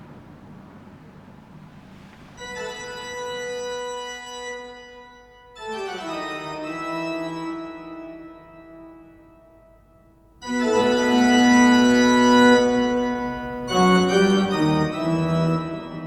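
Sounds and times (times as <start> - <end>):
organ-like keyboard chords: 10.4 - 16.0.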